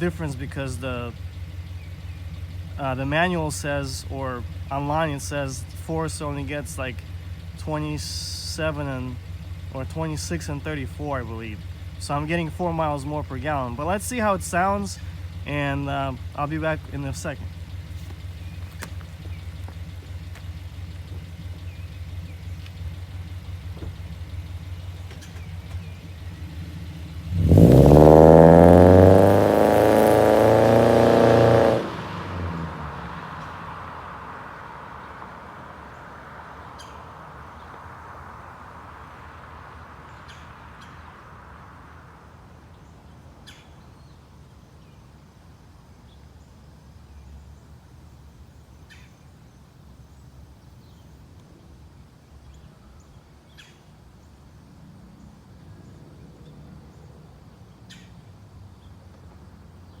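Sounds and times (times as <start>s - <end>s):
bird chirps: 0.0s - 26.9s, 35.9s - 37.8s, 42.7s - 45.1s, 46.0s - 51.3s, 52.3s - 54.4s, 55.2s - 59.1s
car engine accelerating: 0.0s - 42.8s.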